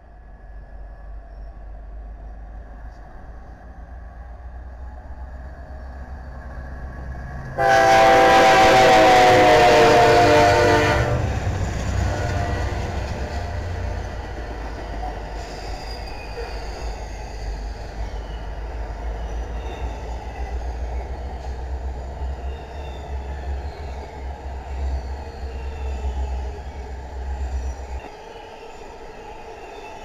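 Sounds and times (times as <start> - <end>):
freight train wheels rumbling: 0.0 - 30.0
faint wheel squeals: 15.2 - 20.4.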